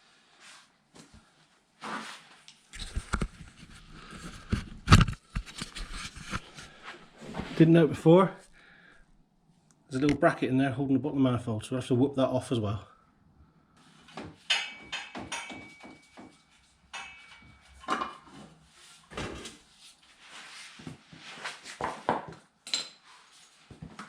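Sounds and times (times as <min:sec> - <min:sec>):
hand tools clinking on metal: 0:14.5 - 0:18.1.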